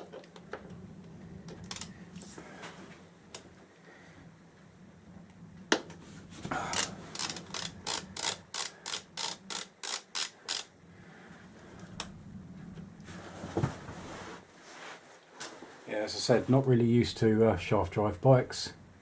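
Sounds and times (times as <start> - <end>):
socket ratchet clicking: 6.7 - 10.7.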